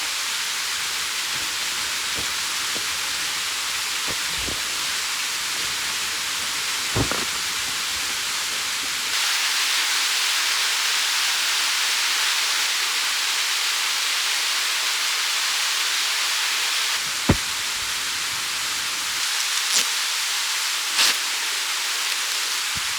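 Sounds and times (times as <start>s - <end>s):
mountain stream rushing: 0.0s - 9.2s.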